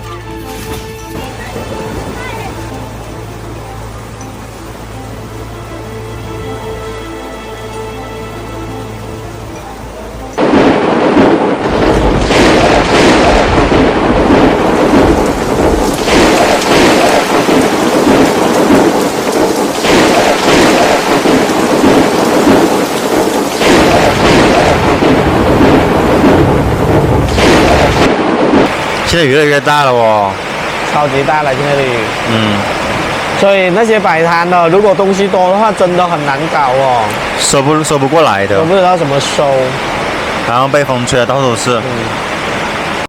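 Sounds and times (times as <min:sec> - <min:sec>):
faint background music: 0:00.0 - 0:10.5
heavy rain pouring: 0:00.0 - 0:43.0
person speaking: 0:29.1 - 0:32.8.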